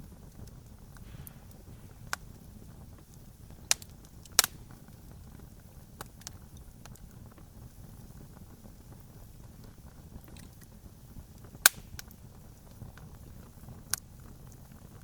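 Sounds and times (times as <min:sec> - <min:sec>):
low rumble of burning fire: 0:00.0 - 0:15.0
campfire pops and snaps: 0:00.4 - 0:07.4, 0:09.6 - 0:13.1.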